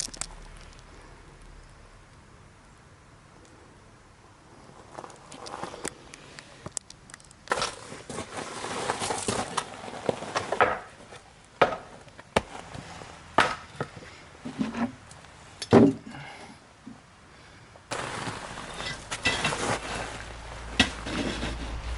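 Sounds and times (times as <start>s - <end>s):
rustling: 4.6s - 11.3s, 17.9s - 21.9s.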